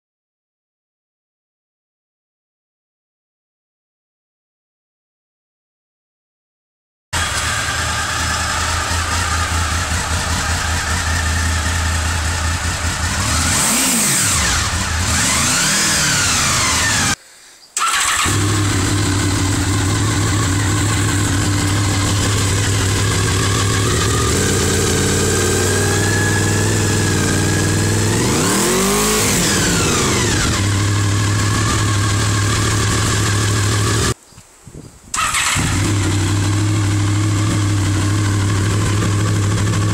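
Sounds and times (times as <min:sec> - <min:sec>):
motorcycle engine idling and revving: 0:07.2 - 0:17.2, 0:17.8 - 0:34.2, 0:35.2 - 0:39.9.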